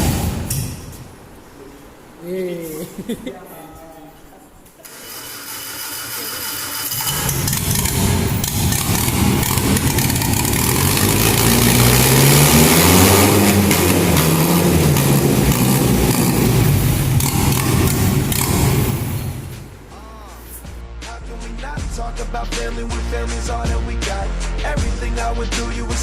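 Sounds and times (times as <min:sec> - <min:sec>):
engine running and revving: 0:06.9 - 0:19.7.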